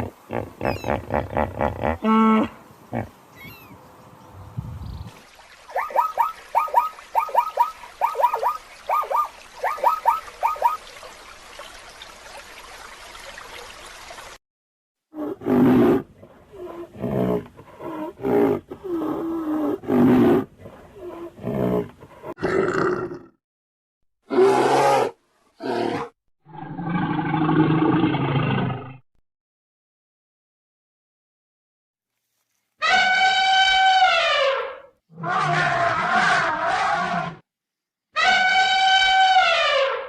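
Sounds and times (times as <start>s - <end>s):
animal chirps falling in pitch: 3.4s - 3.8s
deep roar-like animal calls: 32.9s - 37.4s.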